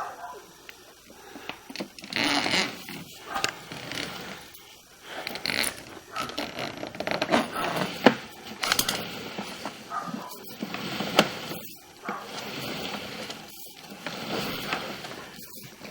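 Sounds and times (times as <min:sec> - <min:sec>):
cable scraping and rattling in pipe: 0:00.7 - 0:15.9.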